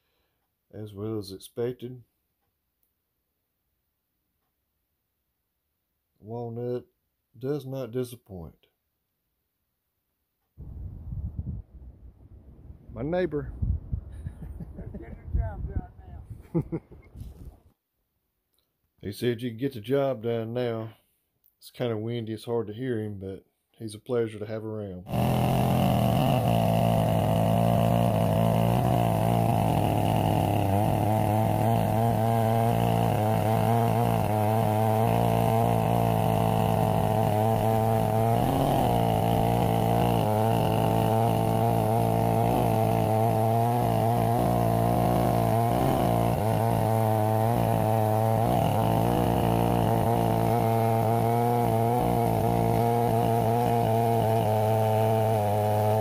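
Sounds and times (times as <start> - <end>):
chainsaw cutting through log: 25.1 - 56.0.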